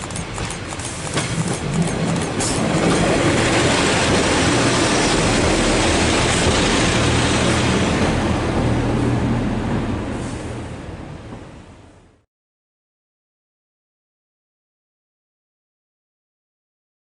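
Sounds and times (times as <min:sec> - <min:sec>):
train rumbling on tracks: 0:00.0 - 0:12.2.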